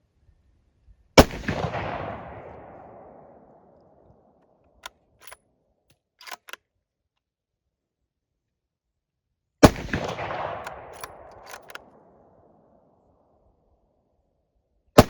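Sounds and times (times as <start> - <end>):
rifle shot with echo: 1.2 - 4.0, 9.6 - 12.8
short clicks: 4.8 - 6.6, 10.6 - 11.9.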